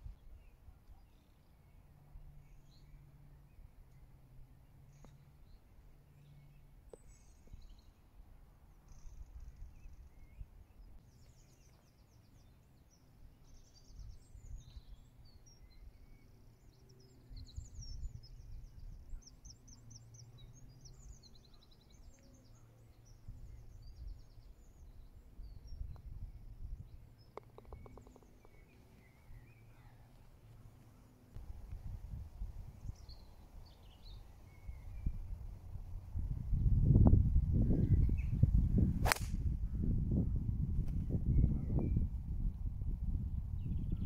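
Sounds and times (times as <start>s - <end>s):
songbirds chirping and trilling: 0.0s - 44.0s
wind rumbling on microphone: 23.2s - 29.5s, 31.4s - 44.0s.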